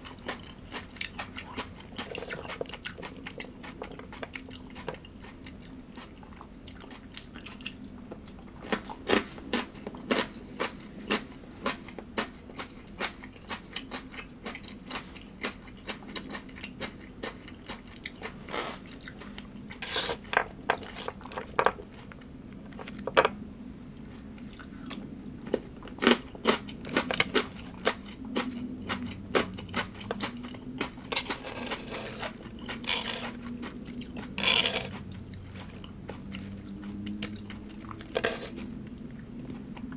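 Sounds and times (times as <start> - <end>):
person chewing crunchy food: 0.0 - 23.2, 24.0 - 39.9.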